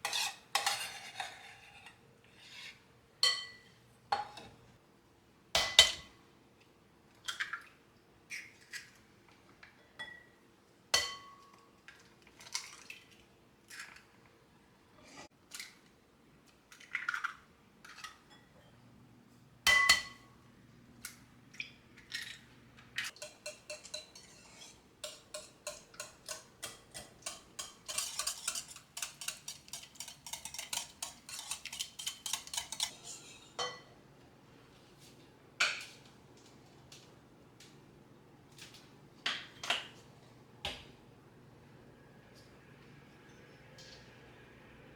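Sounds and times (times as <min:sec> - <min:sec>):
dishes and utensils clinking: 0:00.0 - 0:02.0, 0:03.2 - 0:04.6, 0:11.0 - 0:11.7, 0:19.7 - 0:20.3, 0:23.1 - 0:34.0.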